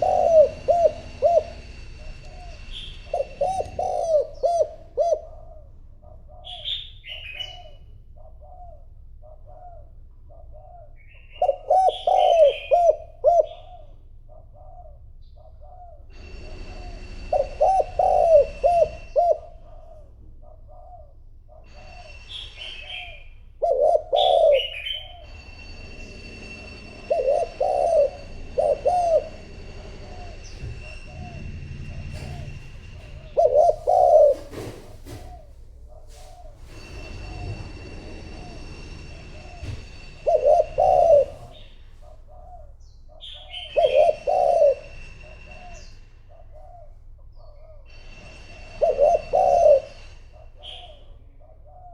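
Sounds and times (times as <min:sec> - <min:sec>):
high bird chirps: 0:00.0 - 0:04.8
dove cooing: 0:00.0 - 0:51.9.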